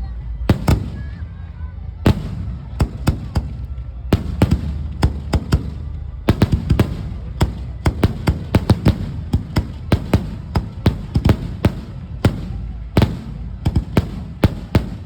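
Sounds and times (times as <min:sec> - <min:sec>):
continuous low rumble: 0:00.0 - 0:15.0
fireworks banging: 0:00.5 - 0:01.2, 0:02.0 - 0:15.0.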